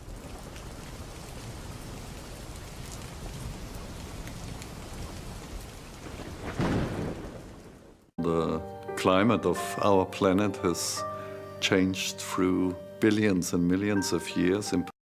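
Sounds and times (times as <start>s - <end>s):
steady rain: 0.0s - 8.1s.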